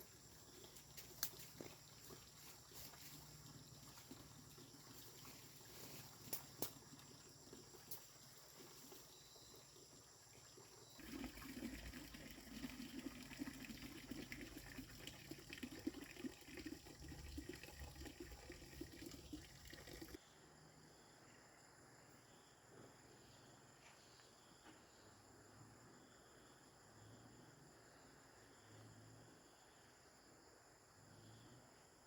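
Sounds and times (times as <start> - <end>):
water running and splashing: 0.2 - 9.0, 10.4 - 20.2.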